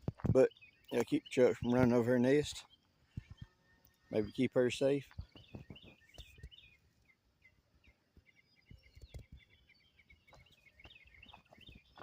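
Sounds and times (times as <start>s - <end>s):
small bird chirping: 0.0s - 12.0s
wind thumps on microphone: 5.1s - 6.6s.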